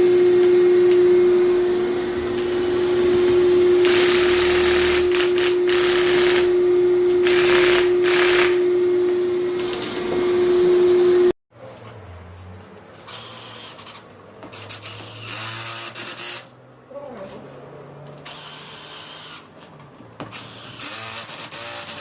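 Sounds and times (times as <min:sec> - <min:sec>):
electric motor running: 0:00.0 - 0:11.3.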